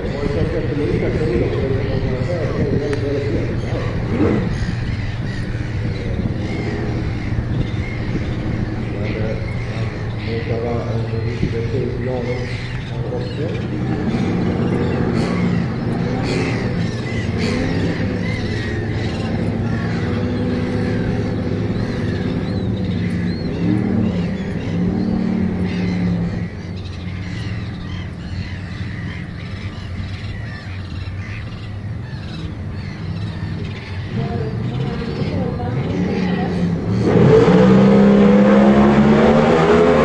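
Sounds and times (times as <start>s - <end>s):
race car engines idling: 0.0s - 40.0s.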